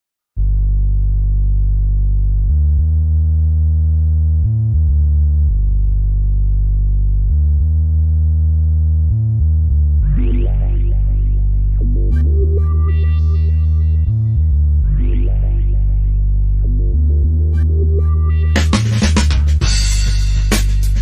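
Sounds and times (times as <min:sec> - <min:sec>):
deep synthesizer bass: 0:00.3 - 0:21.0
higher sliding synth tones: 0:10.0 - 0:18.7.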